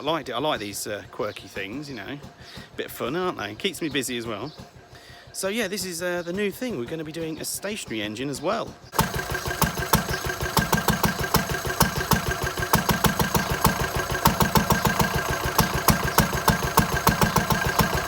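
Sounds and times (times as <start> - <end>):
stationary engine ticking over: 8.9 - 18.0.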